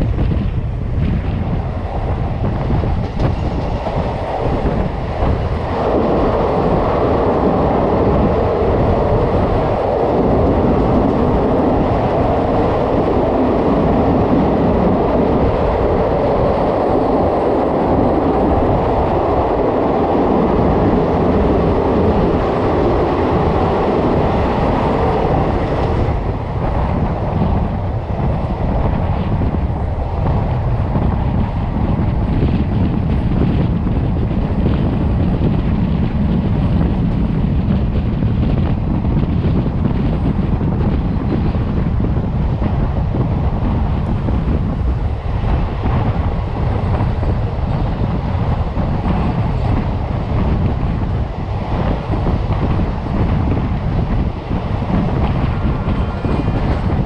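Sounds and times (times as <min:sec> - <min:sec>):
train wheel and rail noise: 0:00.0 - 0:57.0.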